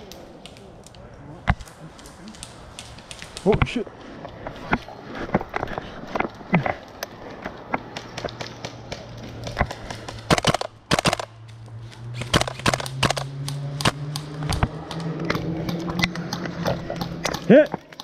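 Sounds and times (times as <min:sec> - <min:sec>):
airsoft guns firing: 0:09.7 - 0:11.3, 0:12.2 - 0:14.2.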